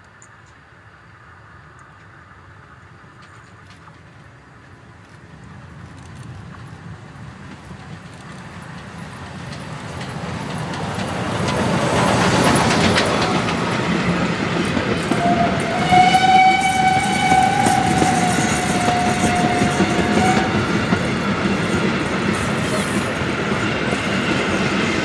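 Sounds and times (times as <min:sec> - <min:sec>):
train rolling noise: 0:00.0 - 0:25.0
locomotive whistle: 0:15.0 - 0:21.0.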